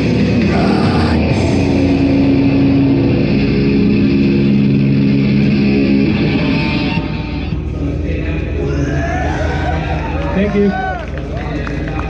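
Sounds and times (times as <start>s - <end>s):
electric guitar and bass chord: 0.0s - 8.0s.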